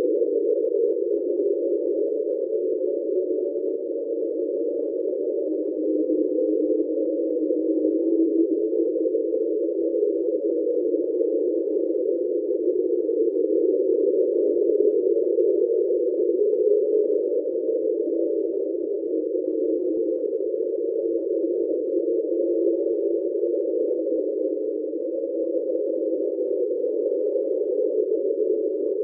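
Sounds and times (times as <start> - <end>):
underwater droning hum: 0.0 - 29.0.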